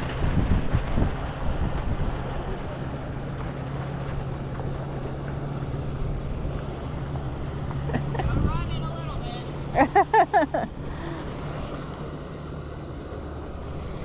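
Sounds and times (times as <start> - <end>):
wind buffeting microphone: 0.0 - 9.2
boat engine droning: 0.0 - 14.0.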